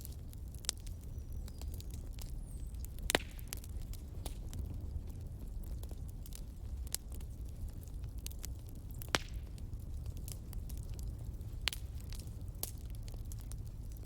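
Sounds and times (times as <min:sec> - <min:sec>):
fireplace fire crackling: 0:00.0 - 0:14.0.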